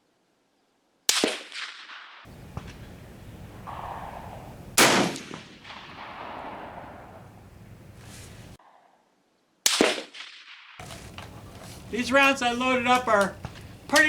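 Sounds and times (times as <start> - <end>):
rifle shot ringing out: 1.1 - 8.4, 9.7 - 10.8.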